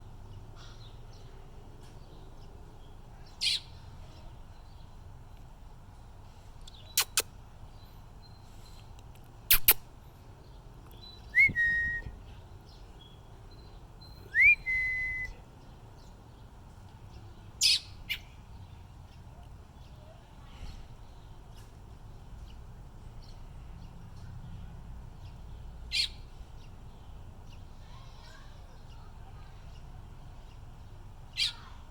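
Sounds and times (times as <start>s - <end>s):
baby bird chirping: 3.4s - 4.6s, 6.6s - 7.4s, 9.5s - 9.8s, 10.9s - 12.1s, 14.2s - 15.4s, 17.6s - 18.6s, 25.2s - 29.9s, 31.3s - 31.9s.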